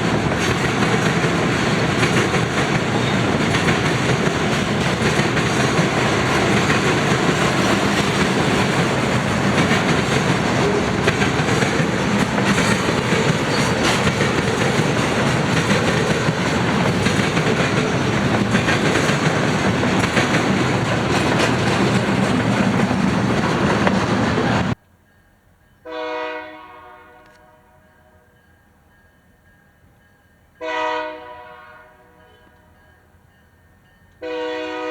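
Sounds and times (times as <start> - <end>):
freight train wheels on rails: 0.0 - 26.3
locomotive air horn blast: 25.9 - 27.9, 30.6 - 32.7, 34.2 - 34.9.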